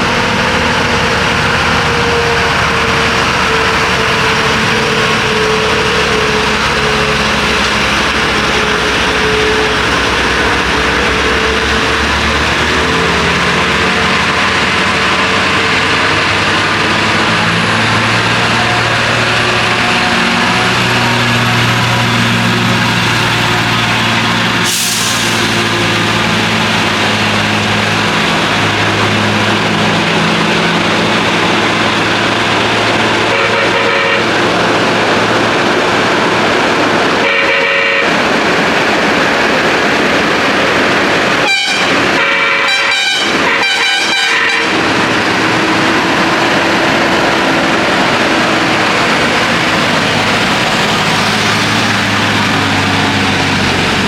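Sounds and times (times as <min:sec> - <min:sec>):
heavy lorry engine labouring: 0:00.0 - 0:54.0
lorry horn blasts: 0:33.2 - 0:34.5, 0:37.2 - 0:38.2, 0:41.4 - 0:45.0.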